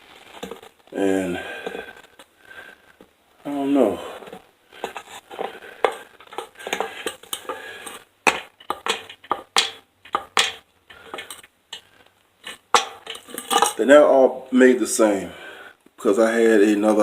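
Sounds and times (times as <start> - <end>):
hard objects knocking and clattering: 4.2 - 13.8.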